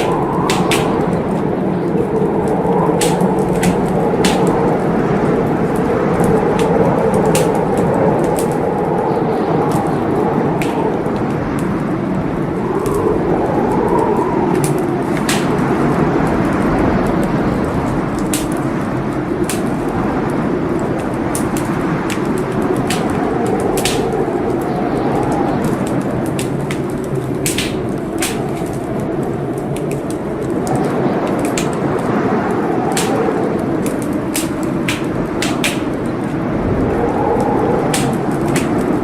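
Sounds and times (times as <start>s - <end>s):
fire crackling and popping: 0.0s - 39.0s
fire flames rushing: 0.0s - 39.0s.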